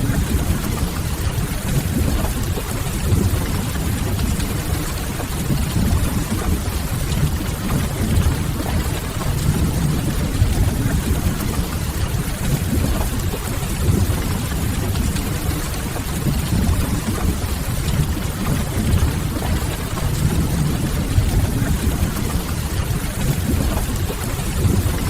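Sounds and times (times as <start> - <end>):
fire rumbling: 3.0 - 25.0
rain hissing: 3.2 - 12.3, 13.9 - 23.3.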